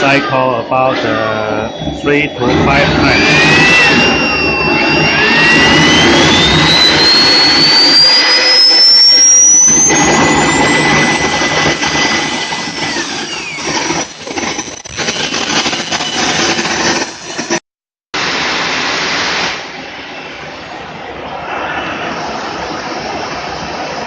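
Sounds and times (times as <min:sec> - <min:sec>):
model jet turbine whining: 0:00.1 - 0:17.7.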